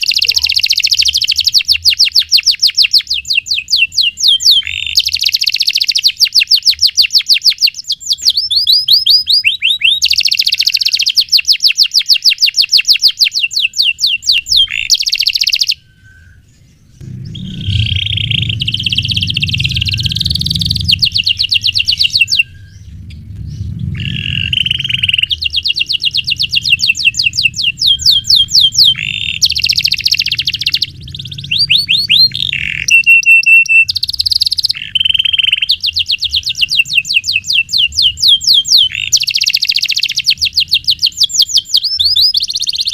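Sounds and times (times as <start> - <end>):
low rumble: 16.0 - 33.0
canary singing fast rolls: 16.7 - 42.9.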